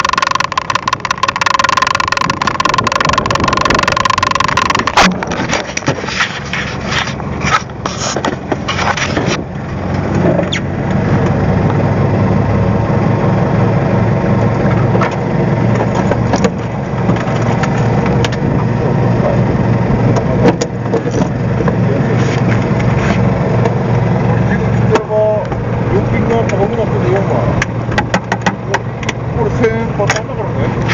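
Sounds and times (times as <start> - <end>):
clicks and rattles: 0.0 - 9.4
boat engine humming: 0.0 - 30.9.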